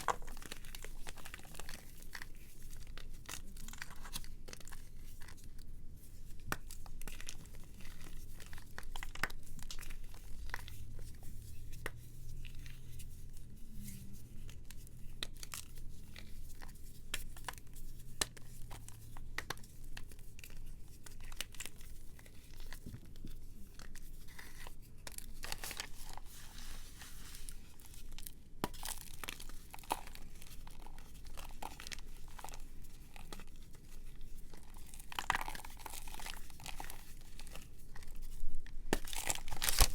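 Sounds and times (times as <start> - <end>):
dry material crunching: 23.3 - 39.9.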